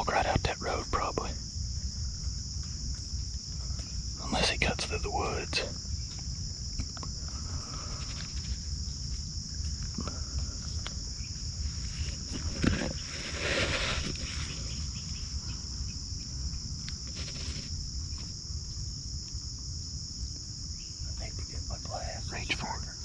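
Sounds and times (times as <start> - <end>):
crickets chirping: 0.0 - 23.0
rustling: 10.6 - 15.4, 16.8 - 18.4.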